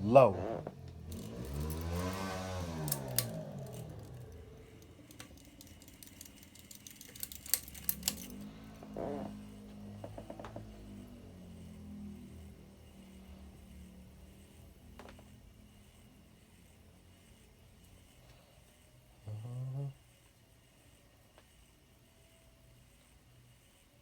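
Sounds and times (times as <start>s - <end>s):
ceiling fan motor hum: 0.0s - 24.0s
pull chain clicking against housing: 0.9s - 8.5s.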